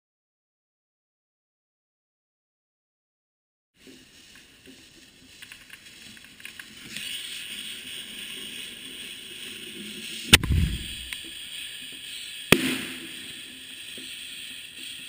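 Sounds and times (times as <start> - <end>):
firework fuse crackling and hissing: 3.8 - 15.0
firework mortar boom: 10.3 - 11.4, 12.5 - 13.4.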